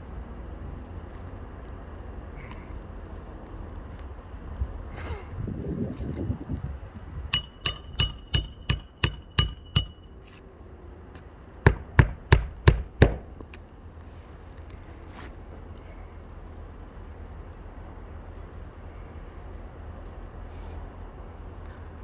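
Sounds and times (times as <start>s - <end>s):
hammer strikes on roof: 7.4s - 10.0s, 11.7s - 13.6s.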